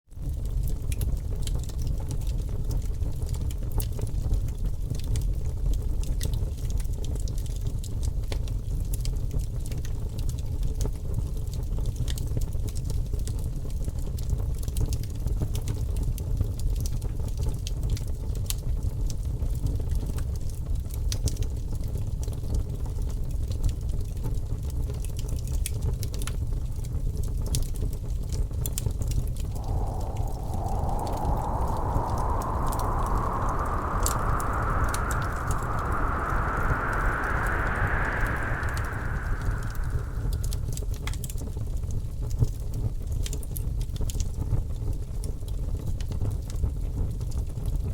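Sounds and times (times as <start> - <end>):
higher sound: 29.5 - 40.7.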